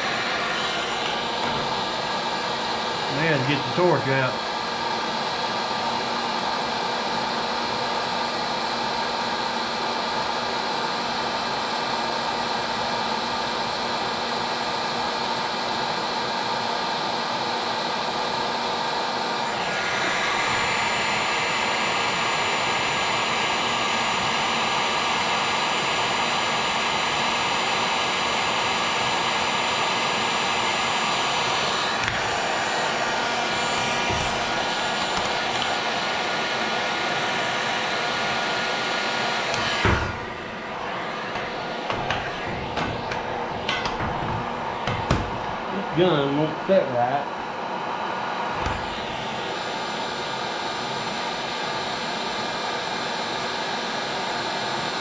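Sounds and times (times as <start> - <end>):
heating tool blowing hiss: 0.0 - 4.4, 19.4 - 46.4.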